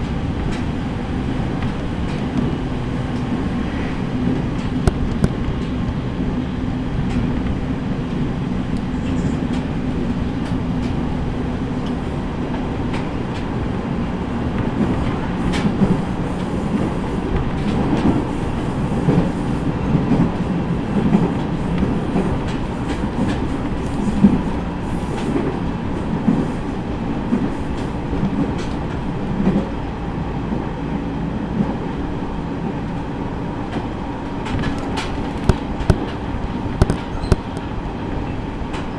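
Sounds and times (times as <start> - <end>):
train motor hum and rumble: 0.0 - 38.9
wheels clicking over rail joints: 33.7 - 37.7.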